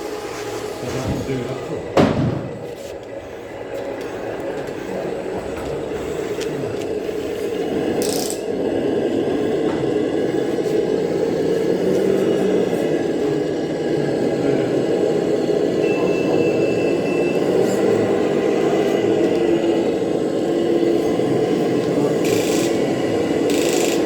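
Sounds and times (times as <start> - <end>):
model vehicle mechanical whir: 21.8 - 24.0.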